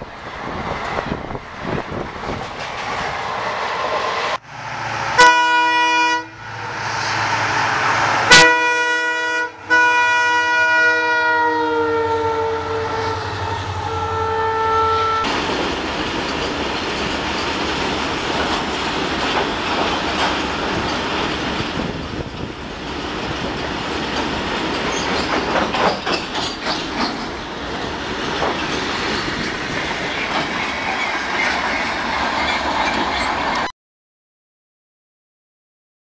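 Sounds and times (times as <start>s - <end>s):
wheels clacking over rail joints: 0.0s - 4.3s, 15.3s - 33.7s
freight train rumbling rattle: 0.0s - 11.4s, 12.2s - 33.7s.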